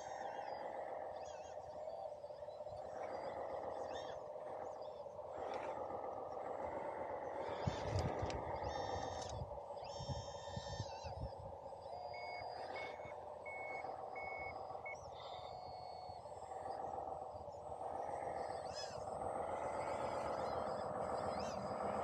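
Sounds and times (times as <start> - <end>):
steady background hum: 0.0 - 22.0
reversing beeper: 11.9 - 16.7.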